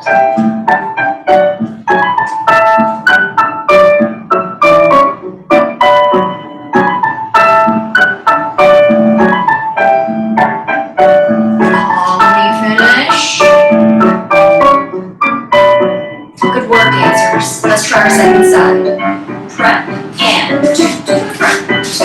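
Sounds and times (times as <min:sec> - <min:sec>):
solo piano playing: 0:00.0 - 0:22.0.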